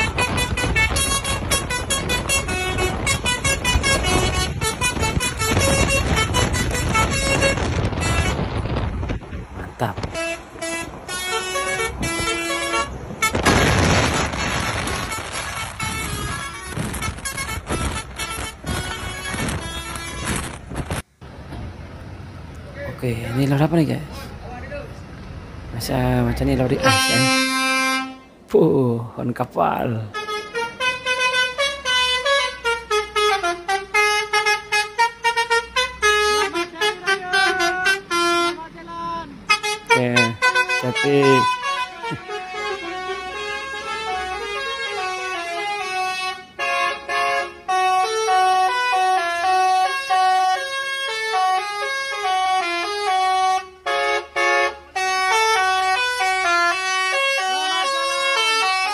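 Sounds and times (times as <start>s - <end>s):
musical air horn tune: 0.0s - 8.8s, 10.0s - 13.8s, 14.5s - 20.6s, 26.8s - 28.4s, 30.1s - 38.7s, 39.5s - 58.9s
diesel engine: 0.0s - 58.9s
road rumble: 0.0s - 58.9s
loud rushing noise: 11.8s - 21.0s.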